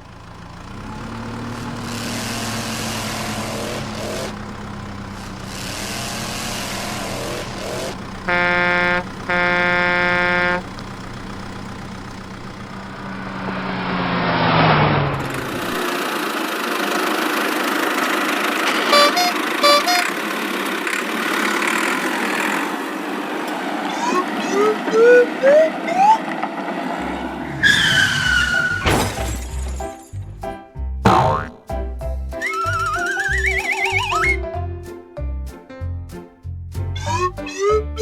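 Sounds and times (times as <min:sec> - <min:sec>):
cartoon engine humming: 0:00.4 - 0:15.9, 0:18.6 - 0:20.2, 0:23.8 - 0:26.4, 0:31.1 - 0:31.7, 0:32.4 - 0:34.4, 0:37.0 - 0:38.0
horn honks: 0:02.1 - 0:12.7, 0:18.7 - 0:20.3
short beeps: 0:19.0 - 0:20.1.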